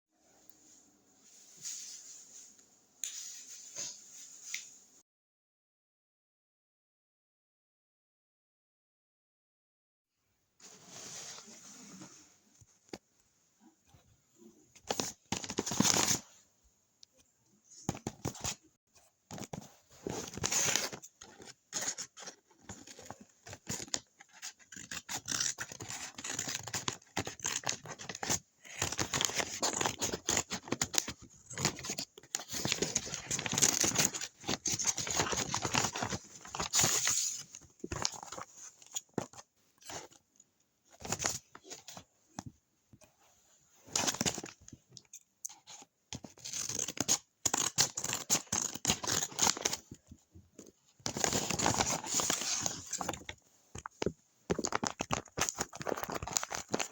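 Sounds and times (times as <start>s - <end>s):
paper crinkling and rustling: 14.8s - 16.3s, 19.3s - 40.2s, 43.8s - 56.9s
paper scratching: 23.6s - 27.7s
paper tearing: 24.3s - 28.2s.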